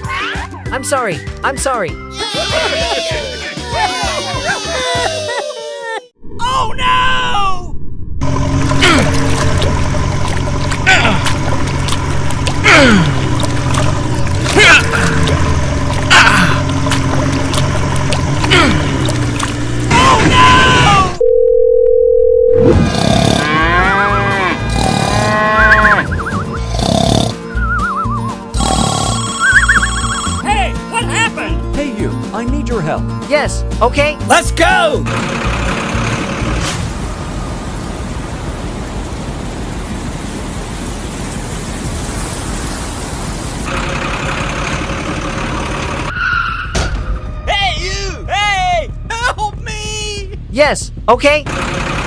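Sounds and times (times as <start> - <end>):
rough vehicle engine: 8.2 - 20.7, 35.0 - 46.3, 51.0 - 52.0
steady single-pitch beep: 21.2 - 22.6, 29.1 - 30.4
warbling drawn-out calls: 25.2 - 28.5, 29.2 - 30.4.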